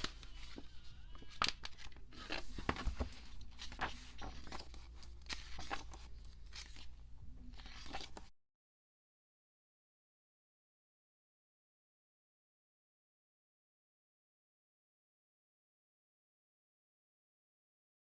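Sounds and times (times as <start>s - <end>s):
low steady hum: 0.0s - 8.3s.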